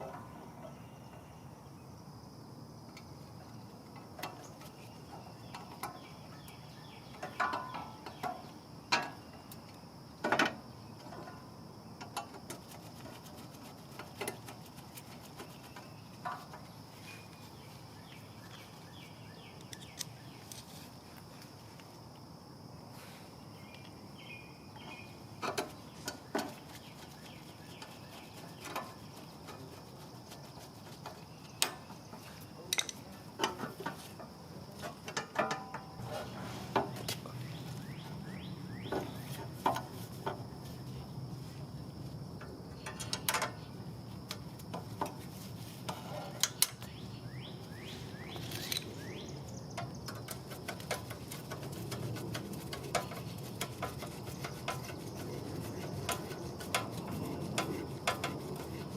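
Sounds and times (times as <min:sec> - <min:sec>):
hand tools clicking on metal: 0:32.7 - 0:33.6, 0:46.4 - 0:46.9, 0:49.6 - 0:58.9.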